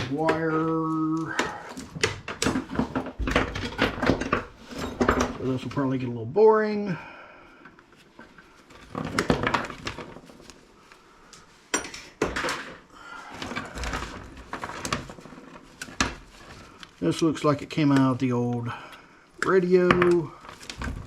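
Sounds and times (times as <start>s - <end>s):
metal parts clattering: 2.3s - 5.8s.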